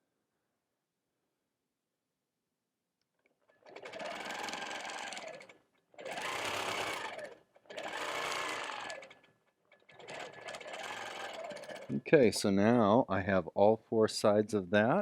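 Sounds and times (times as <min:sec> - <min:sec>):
quilting machine stitching: 0:03.4 - 0:12.0.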